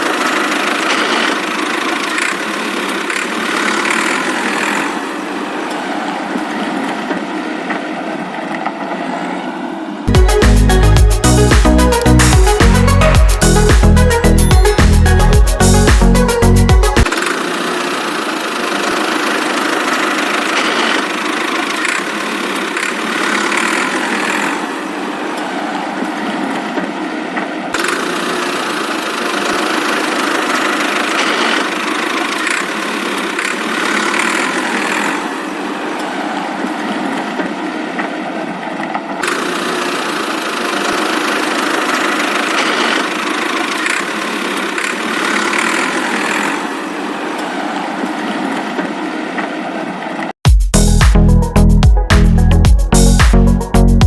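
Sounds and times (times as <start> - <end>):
tractor engine running: 0.0 - 6.4, 10.1 - 25.4, 27.8 - 36.2, 39.2 - 47.6.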